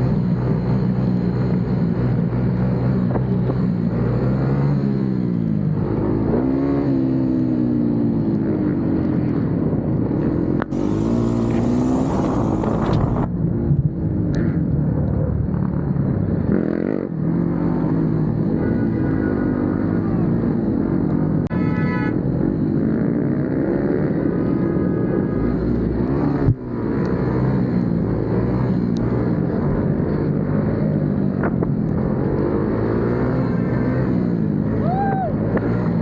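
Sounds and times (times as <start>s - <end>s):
motorcycle engines revving: 0.0s - 36.0s
burst of hiss: 10.7s - 13.2s.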